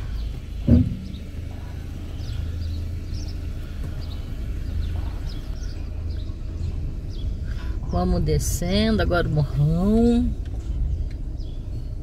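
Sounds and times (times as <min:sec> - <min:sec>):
car engine idling: 0:00.0 - 0:12.0
heavy thump: 0:00.6 - 0:01.3.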